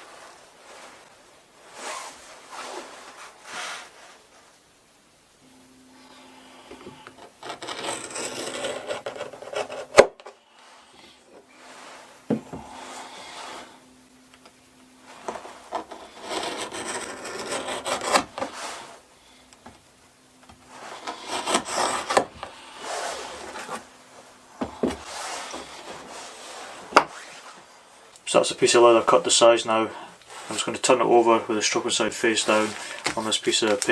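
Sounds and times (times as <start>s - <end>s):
knife cutting leather: 7.2s - 10.1s, 15.7s - 18.9s, 20.8s - 23.8s.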